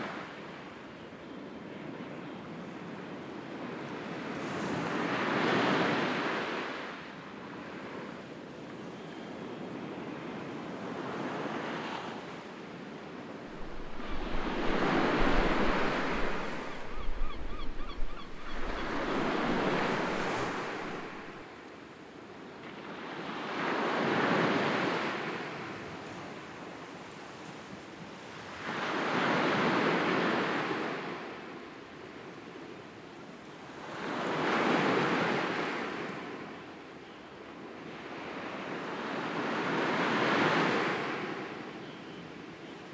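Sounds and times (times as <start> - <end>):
sea waves washing ashore: 13.1 - 21.7
wind buffeting microphone: 13.5 - 21.4.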